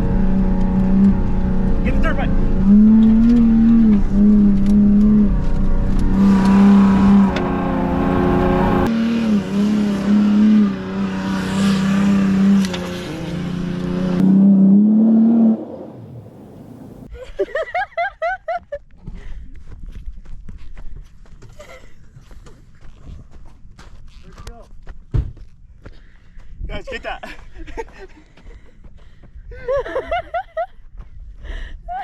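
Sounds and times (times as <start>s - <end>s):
vehicle engine revving hard: 0.0s - 17.1s.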